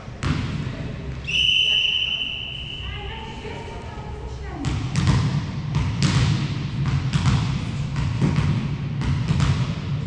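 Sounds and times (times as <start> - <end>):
ball thumps and slaps: 4.6 - 10.0.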